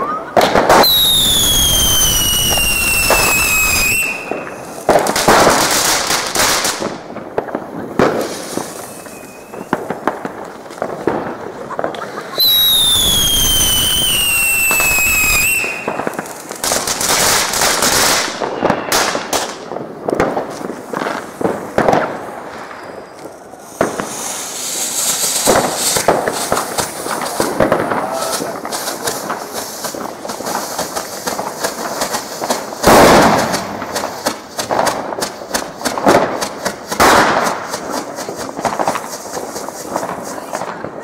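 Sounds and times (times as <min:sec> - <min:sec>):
firecracker bangs and crackling: 0:00.0 - 0:41.0
whistling firework: 0:00.0 - 0:41.0.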